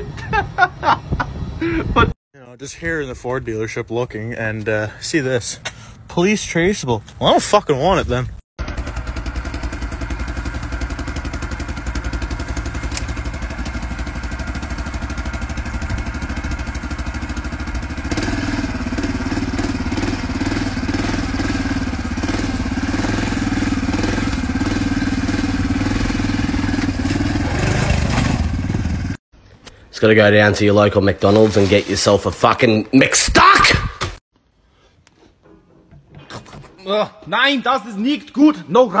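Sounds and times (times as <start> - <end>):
engine running with rapid pulse: 8.6 - 29.2.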